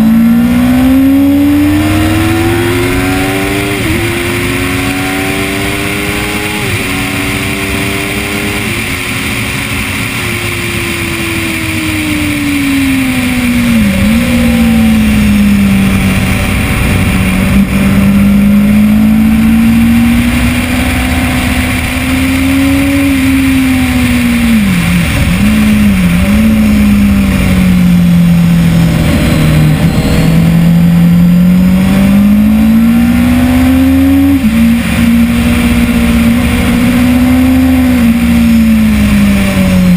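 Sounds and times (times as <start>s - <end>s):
motorcycle engine at high revs: 0.0s - 39.9s
wind rush: 1.3s - 33.3s.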